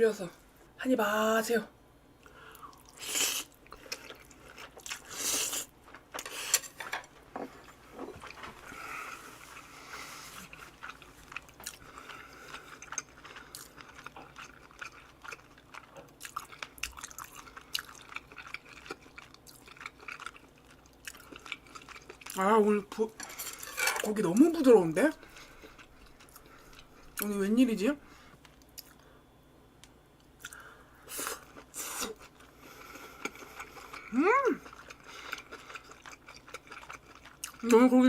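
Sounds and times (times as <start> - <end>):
wet chewing: 7.6 - 22.4, 30.4 - 37.8.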